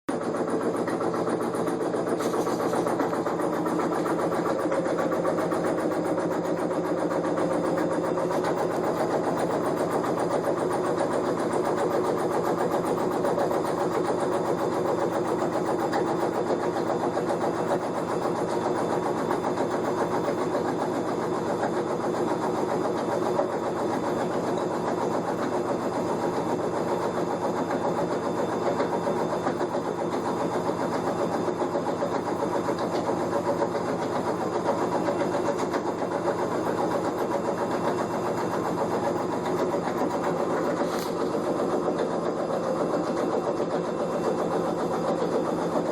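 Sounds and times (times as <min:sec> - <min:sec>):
washing machine drum grinding: 0:00.1 - 0:45.9.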